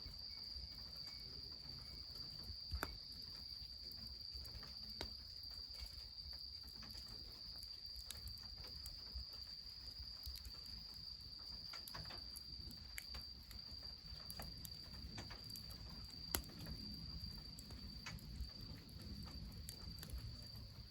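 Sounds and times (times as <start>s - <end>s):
high-pitched insect trill: 0.0s - 20.9s
wood fire crackling: 0.0s - 20.9s.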